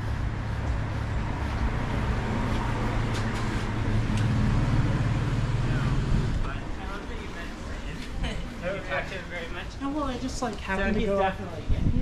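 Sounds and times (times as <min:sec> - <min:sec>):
vehicle engine running: 0:00.0 - 0:06.4
street traffic: 0:00.0 - 0:12.0.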